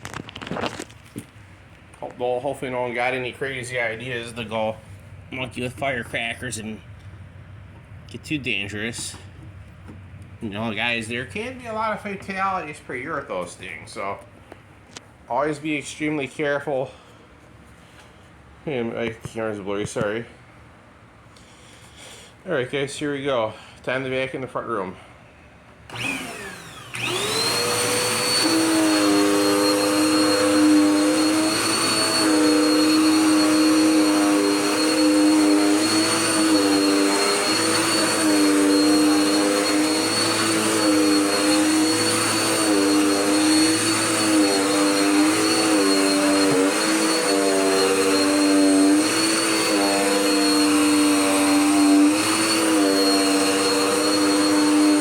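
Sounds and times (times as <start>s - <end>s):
vacuum cleaner motor whine: 25.9s - 55.0s.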